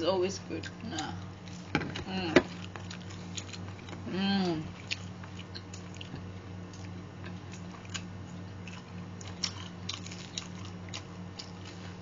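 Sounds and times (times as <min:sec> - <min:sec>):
people chewing and crunching: 0:00.6 - 0:12.0.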